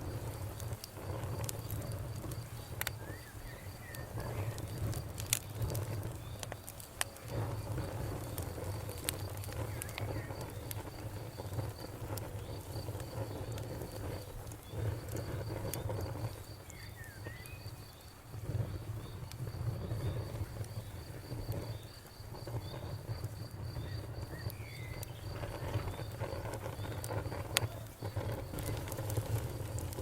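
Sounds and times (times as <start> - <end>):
campfire crackling and popping: 0.0 - 30.0
insect chirping: 0.0 - 30.0.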